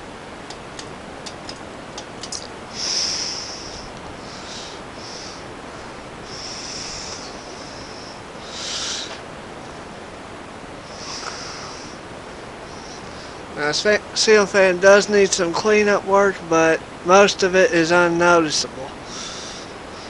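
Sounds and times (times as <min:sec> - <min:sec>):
ceiling fan air rushing: 0:00.0 - 0:20.0
breathy sniffs and exhales: 0:10.9 - 0:12.0.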